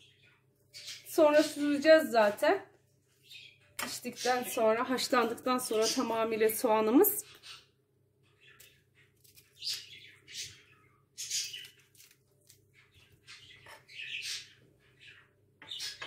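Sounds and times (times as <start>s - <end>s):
small bird chirping: 0.0s - 1.6s, 3.1s - 4.4s, 7.2s - 12.1s, 12.7s - 16.0s.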